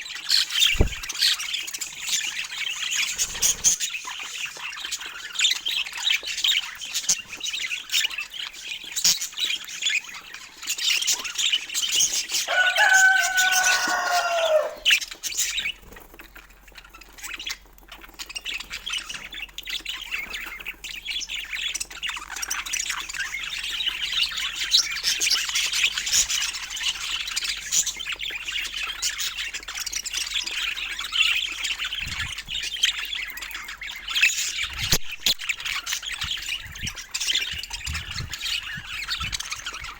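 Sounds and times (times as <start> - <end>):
budgerigars chattering and warbling: 0.0 - 39.9
bird squawk: 0.6 - 1.3, 12.5 - 15.0.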